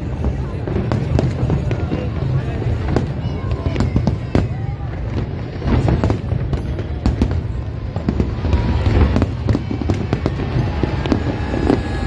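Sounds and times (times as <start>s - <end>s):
fireworks bursting with sharp bangs: 0.0s - 12.0s
deep rumble: 8.1s - 12.0s.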